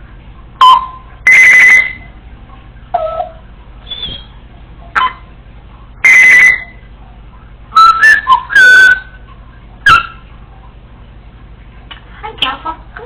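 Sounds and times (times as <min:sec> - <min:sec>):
parrot whistling: 0:00.6 - 0:02.1, 0:03.0 - 0:04.4, 0:05.0 - 0:05.3, 0:06.0 - 0:06.8, 0:07.7 - 0:09.2, 0:09.8 - 0:10.2.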